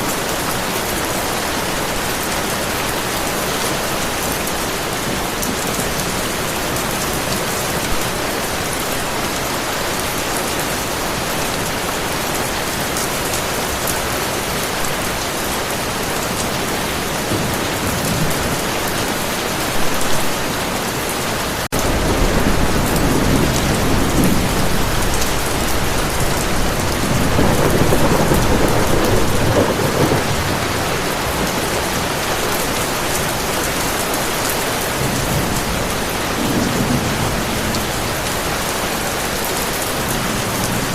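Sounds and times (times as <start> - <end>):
heavy rain: 0.0 - 40.9
thunder rumbling: 21.7 - 33.8.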